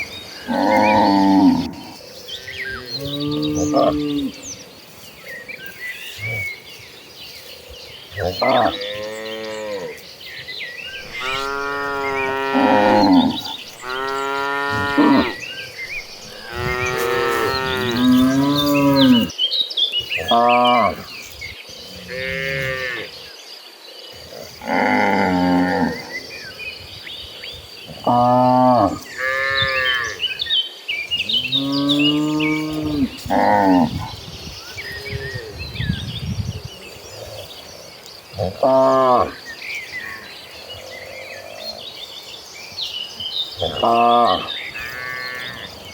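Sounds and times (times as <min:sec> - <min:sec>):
small birds chirping: 0:00.0 - 0:45.9
cattle mooing: 0:00.5 - 0:01.9, 0:11.0 - 0:19.3.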